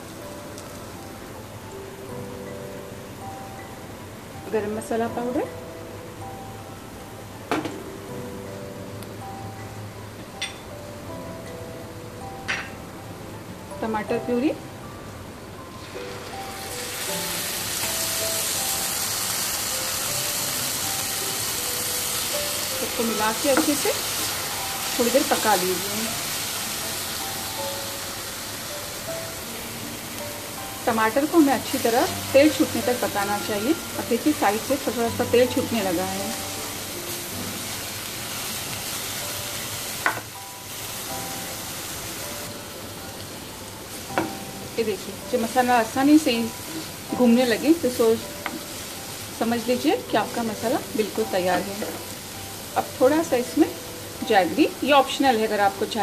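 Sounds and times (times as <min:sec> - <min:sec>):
tomato puree sizzling in pan: 0:00.0 - 0:03.6, 0:15.6 - 0:56.0.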